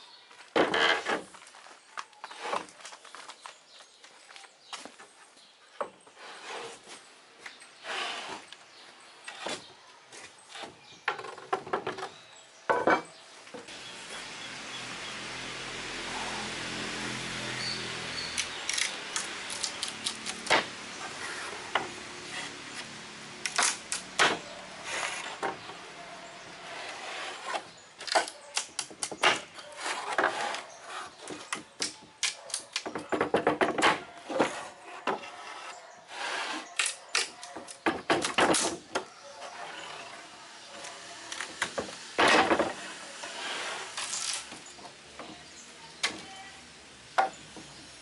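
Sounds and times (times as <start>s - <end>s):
wooden slats knocking and clattering: 10.6s - 13.7s, 32.8s - 35.2s, 37.6s - 39.1s, 41.5s - 42.8s.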